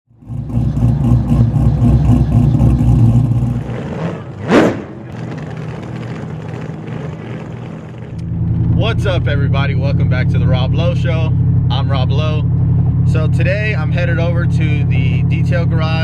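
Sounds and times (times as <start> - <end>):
truck exhaust running loud: 0.1 - 16.0
rising swish: 1.1 - 5.5.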